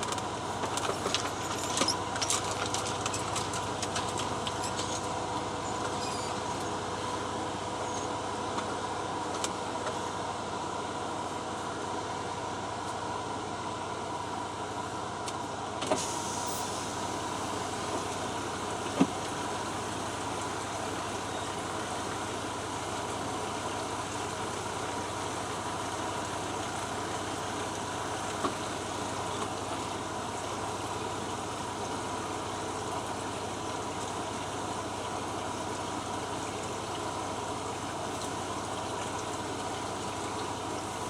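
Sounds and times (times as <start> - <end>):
car engine running: 15.9 - 41.0.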